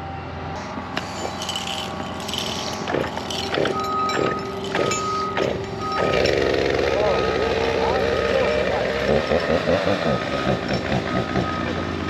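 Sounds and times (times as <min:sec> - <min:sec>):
work vehicle engine running: 0:00.1 - 0:12.0
backup alarm beeping: 0:03.8 - 0:06.4, 0:07.0 - 0:12.0.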